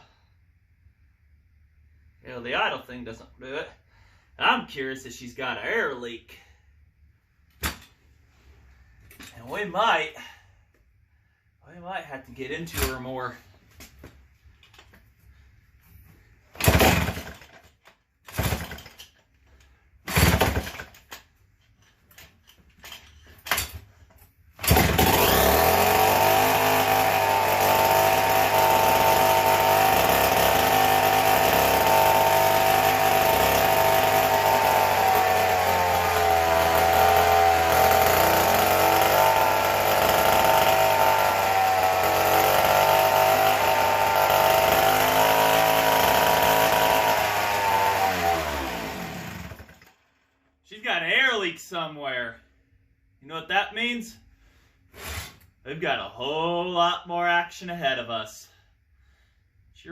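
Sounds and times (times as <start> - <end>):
chainsaw starter pulls: 16.6 - 21.3, 24.6 - 50.0
chainsaw engine running fast: 24.6 - 49.8.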